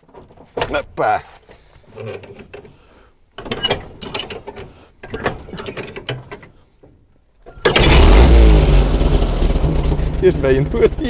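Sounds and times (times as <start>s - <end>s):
starter motor cranking: 7.6s - 11.0s
engine starting and running loudly: 7.7s - 11.0s.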